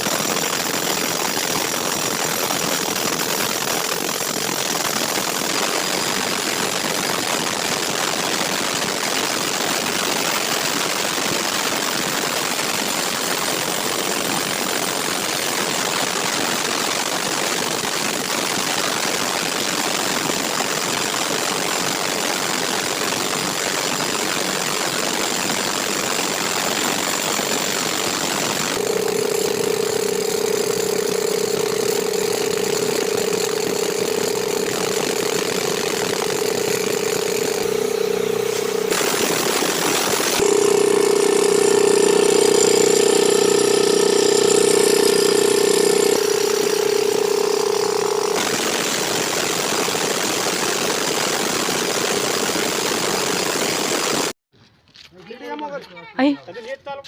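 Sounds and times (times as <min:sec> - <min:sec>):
machinery engine running: 0:23.7 - 0:54.3
steady high whine: 0:26.4 - 0:49.9.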